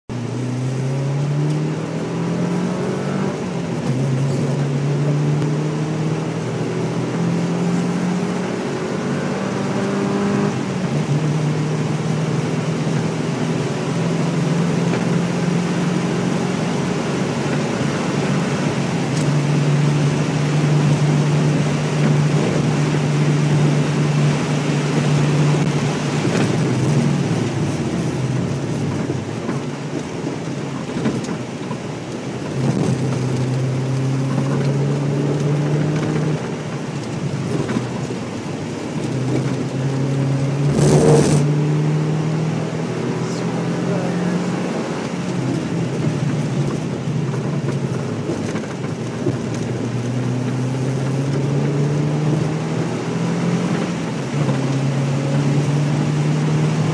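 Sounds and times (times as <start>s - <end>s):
car engine revving: 0.1s - 56.9s
tyre and wind noise: 16.5s - 43.1s, 44.5s - 56.9s.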